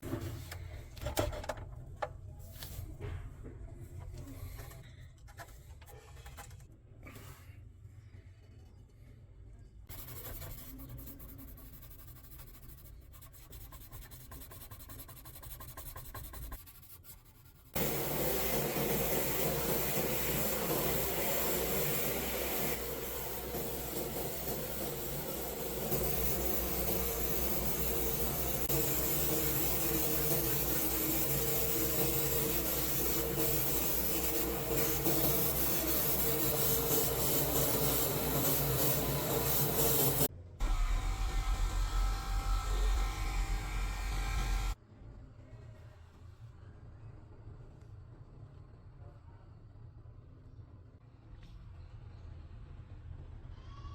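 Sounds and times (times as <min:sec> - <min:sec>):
sanding rusty metal: 0:09.9 - 0:40.3
loud grinding noise: 0:17.8 - 0:44.8
steady hum: 0:17.8 - 0:44.8.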